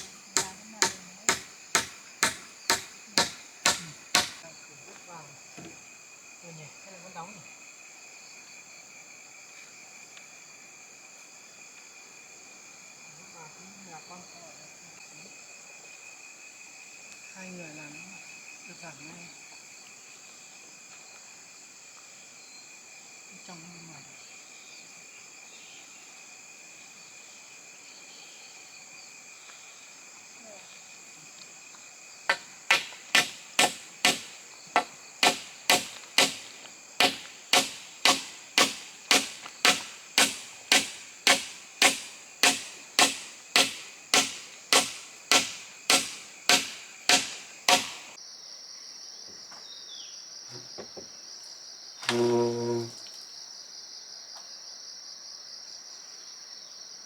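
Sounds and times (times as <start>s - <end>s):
hammer nailing wood: 0.0s - 4.4s, 32.3s - 48.2s
insects chirring: 0.0s - 57.0s.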